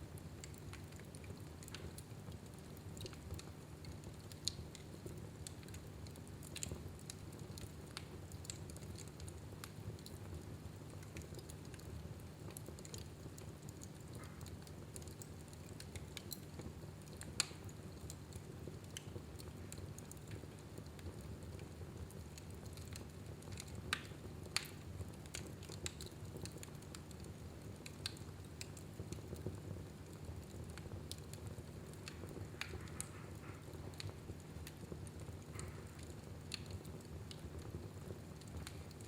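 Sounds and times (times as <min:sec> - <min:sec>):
fire crackling in fireplace: 0:00.0 - 0:39.0
sharp pops of fire: 0:17.2 - 0:18.2, 0:30.7 - 0:39.0.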